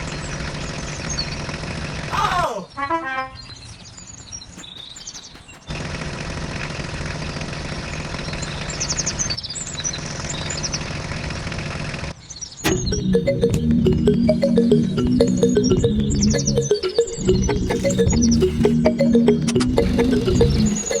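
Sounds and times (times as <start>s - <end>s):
birds chirping: 4.4s - 5.7s
electronic music: 12.7s - 21.0s.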